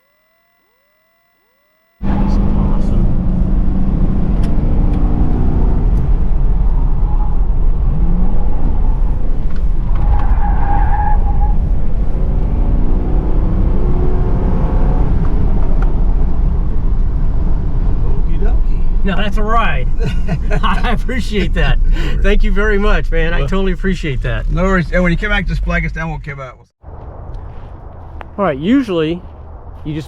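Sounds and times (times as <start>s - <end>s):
car engine revving: 2.0s - 26.0s
road noise: 2.0s - 26.2s, 26.8s - 30.0s.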